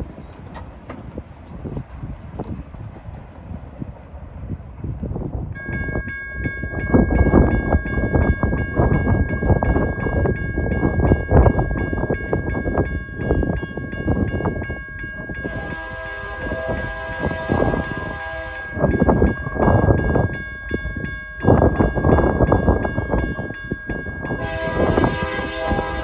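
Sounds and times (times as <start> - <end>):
train wheels rumbling on rail: 0.0 - 26.0
locomotive horn: 15.4 - 19.0, 24.4 - 26.0.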